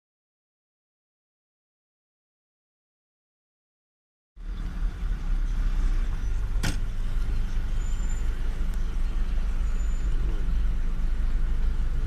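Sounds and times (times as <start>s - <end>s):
car engine and road noise: 4.4s - 12.0s.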